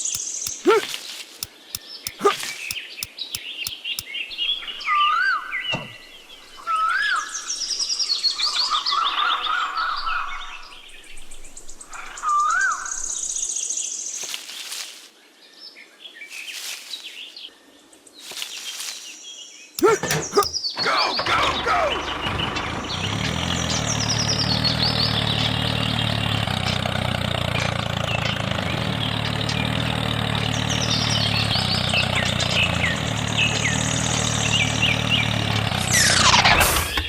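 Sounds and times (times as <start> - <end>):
light evenly spaced ticks: 0.0 - 0.9, 2.1 - 2.8.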